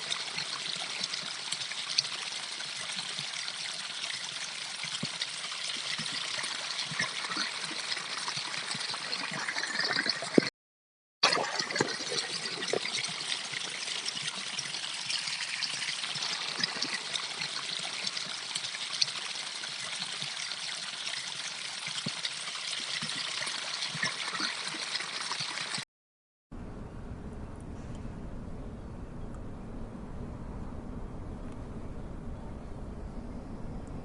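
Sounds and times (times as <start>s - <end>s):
water trickling: 0.0s - 10.5s, 11.2s - 25.8s.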